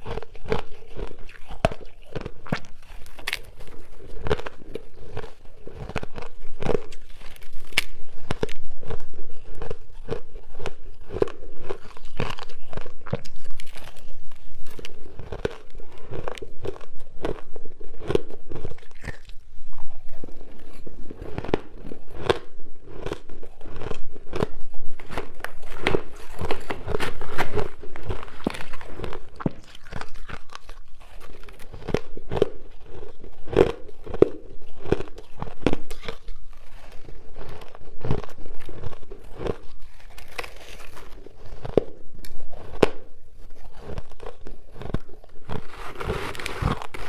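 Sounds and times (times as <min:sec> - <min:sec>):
ice being crunched and chewed: 0:00.0 - 0:47.0.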